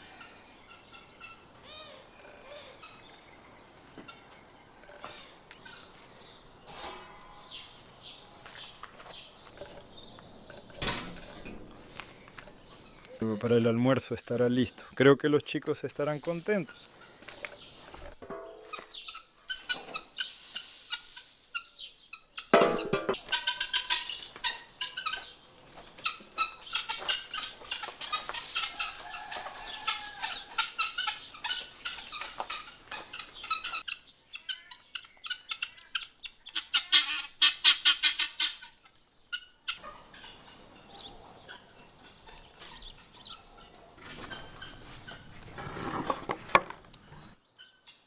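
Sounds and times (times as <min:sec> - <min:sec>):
poultry squawks and clucks: 0:00.0 - 0:03.2, 0:03.8 - 0:07.7, 0:16.8 - 0:48.0
rattling gobble: 0:23.1 - 0:25.2, 0:26.0 - 0:33.8, 0:35.4 - 0:40.4.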